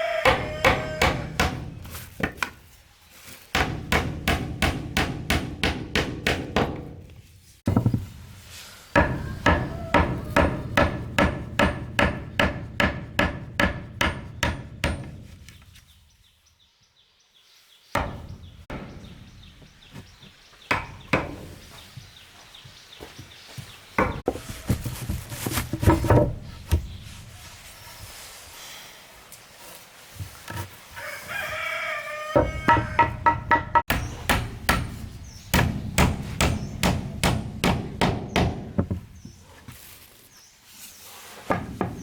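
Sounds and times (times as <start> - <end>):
hammer striking wood: 0.2 - 2.5, 3.6 - 7.1, 9.0 - 15.4, 18.0 - 19.2, 20.7 - 21.6, 32.4 - 39.1.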